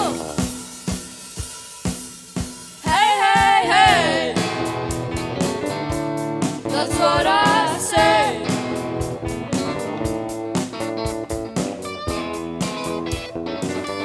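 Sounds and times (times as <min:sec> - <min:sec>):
person singing: 0:00.0 - 0:00.6, 0:02.8 - 0:04.7, 0:06.6 - 0:08.8
drum kit with cymbal ticks: 0:00.0 - 0:14.0
electric guitars: 0:03.2 - 0:14.0.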